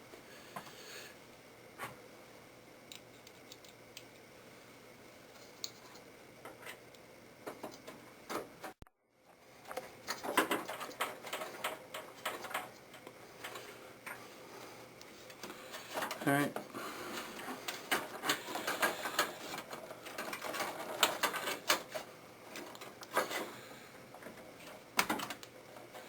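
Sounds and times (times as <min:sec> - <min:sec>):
clicks and taps inside computer case: 0:25.0 - 0:25.4.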